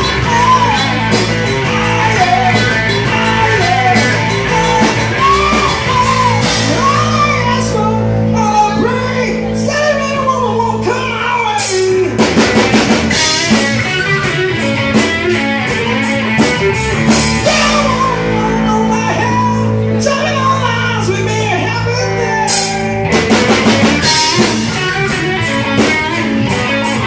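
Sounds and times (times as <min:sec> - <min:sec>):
drum kit: 0:00.0 - 0:09.0, 0:10.5 - 0:27.0
bass guitar: 0:00.0 - 0:27.0
electric guitar riff: 0:00.0 - 0:27.0.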